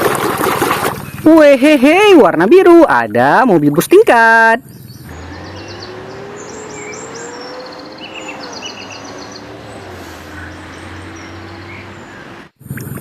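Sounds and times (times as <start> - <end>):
outdoor noise: 0.0 - 13.0
small birds chirping: 2.8 - 12.6.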